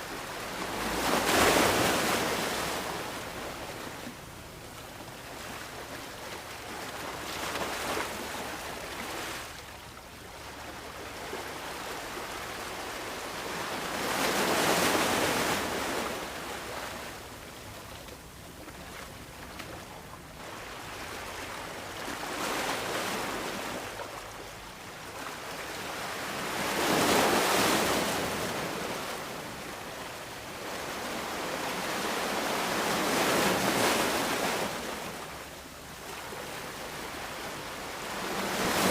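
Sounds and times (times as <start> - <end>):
ocean waves breaking on beach: 0.0 - 17.4, 20.4 - 38.9.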